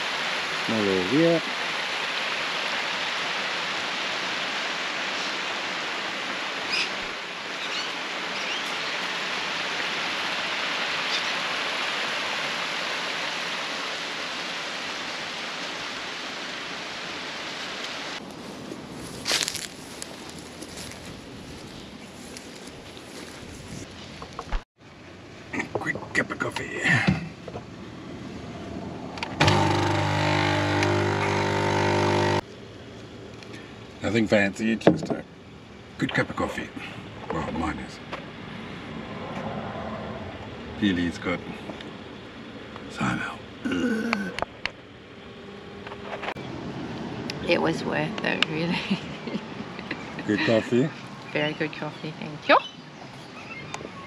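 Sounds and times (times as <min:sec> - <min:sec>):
creek water running: 0:00.0 - 0:23.3, 0:29.4 - 0:32.5
electric motor humming: 0:29.3 - 0:32.5.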